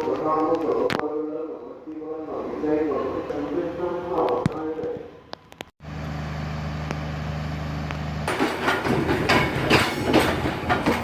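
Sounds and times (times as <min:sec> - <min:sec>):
low engine hum: 0:05.8 - 0:08.3
train clattering on rails: 0:08.2 - 0:11.0.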